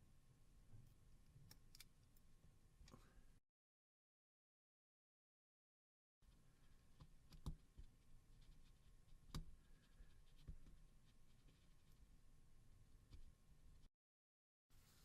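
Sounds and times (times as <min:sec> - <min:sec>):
faint sharp clicks and taps: 0:06.9 - 0:12.0.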